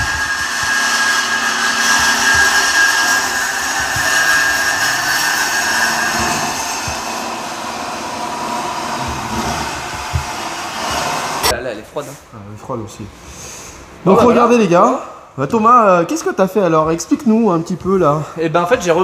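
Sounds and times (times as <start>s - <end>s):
high turbo whine: 0.0s - 11.5s.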